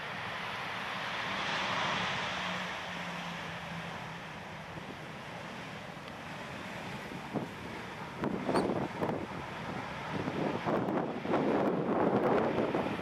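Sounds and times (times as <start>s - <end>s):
jet engine rushing noise: 0.0s - 13.0s
wind buffeting microphone: 4.5s - 13.0s.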